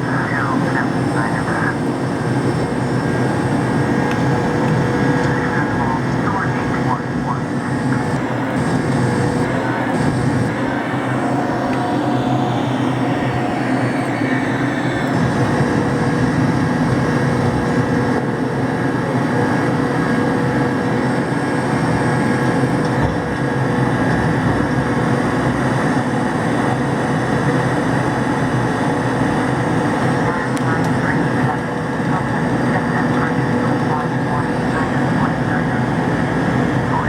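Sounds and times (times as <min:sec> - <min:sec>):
faint steady whine: 0:00.0 - 0:37.0
jet engine rumble: 0:00.0 - 0:37.0.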